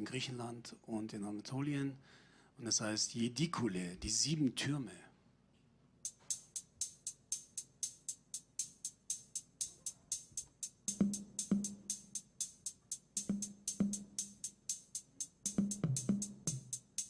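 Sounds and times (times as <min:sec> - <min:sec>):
hi-hat ticks: 0:06.0 - 0:17.0.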